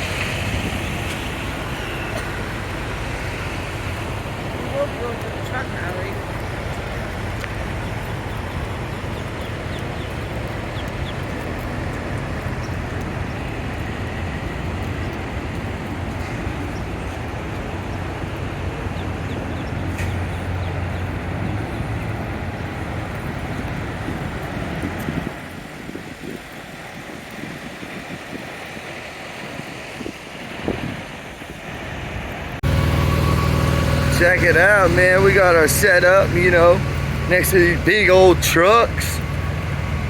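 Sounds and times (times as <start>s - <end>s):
truck engines idling: 0.0s - 40.0s.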